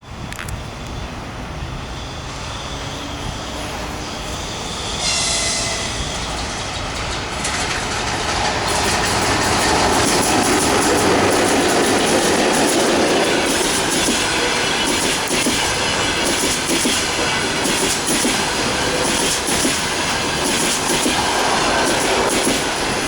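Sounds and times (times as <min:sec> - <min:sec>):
passenger train passing: 0:00.0 - 0:23.0
high ringing tone: 0:01.6 - 0:06.6.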